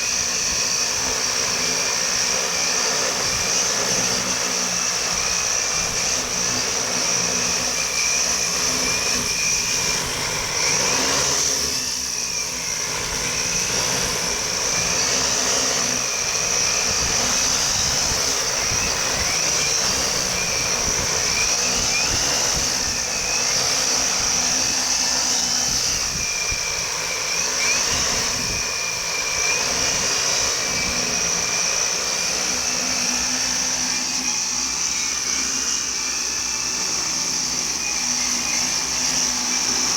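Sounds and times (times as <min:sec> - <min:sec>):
drone motors whining: 0:00.0 - 0:39.9
wind buffeting microphone: 0:16.5 - 0:31.3.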